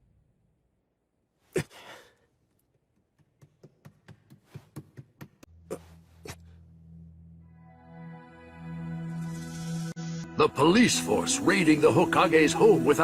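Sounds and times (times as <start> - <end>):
low music drone: 5.6 - 13.0.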